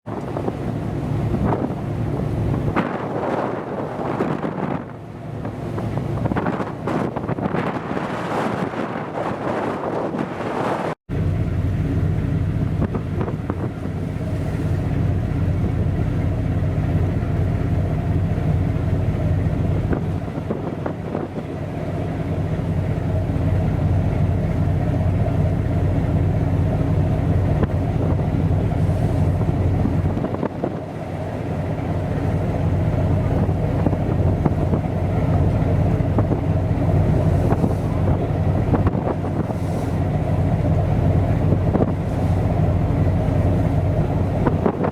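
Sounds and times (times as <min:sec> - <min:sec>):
ship engines droning: 0:00.0 - 0:44.9
wind on microphone: 0:00.1 - 0:11.0, 0:12.2 - 0:44.9.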